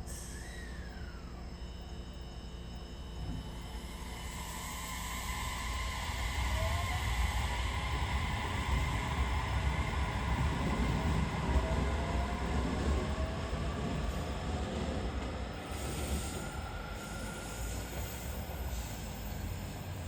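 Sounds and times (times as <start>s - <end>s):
train wheels rumbling on rails: 5.3s - 20.0s.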